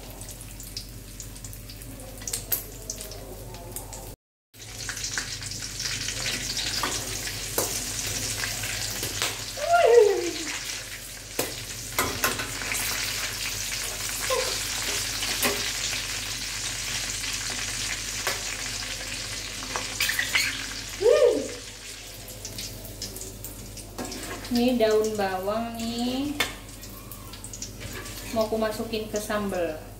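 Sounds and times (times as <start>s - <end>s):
vegetables sizzling in hot oil: 0.0s - 29.9s
falling squeaks: 19.9s - 20.8s.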